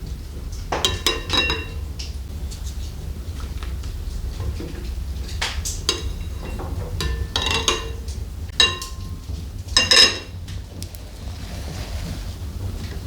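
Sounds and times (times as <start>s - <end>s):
steady low hum: 0.0s - 11.4s
hard objects clinking: 0.8s - 1.9s, 5.8s - 10.4s.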